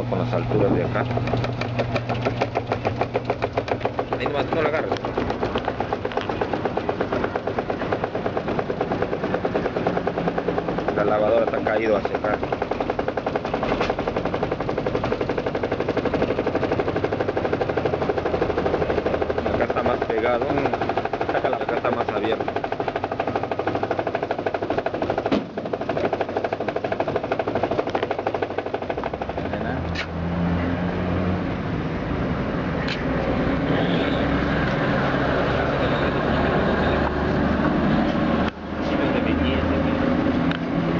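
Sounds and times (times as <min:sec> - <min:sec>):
washing machine rattling: 0:00.0 - 0:30.3.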